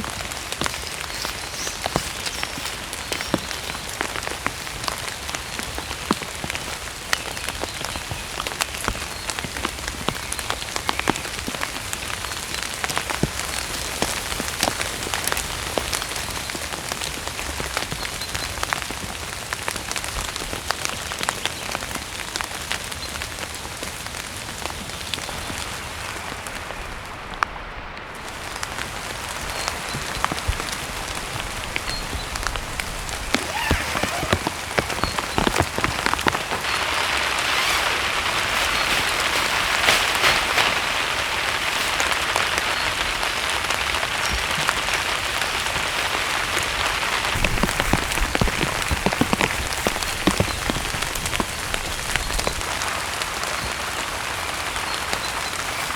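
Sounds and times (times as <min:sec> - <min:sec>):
heavy rain falling: 0:32.4 - 0:55.9.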